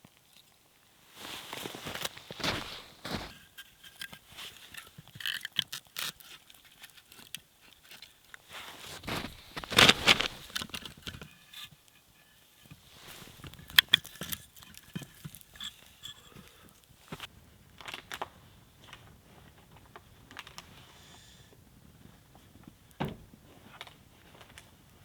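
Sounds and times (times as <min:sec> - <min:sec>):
crunches and scrapes in snow: 0:01.2 - 0:03.6, 0:08.4 - 0:11.0.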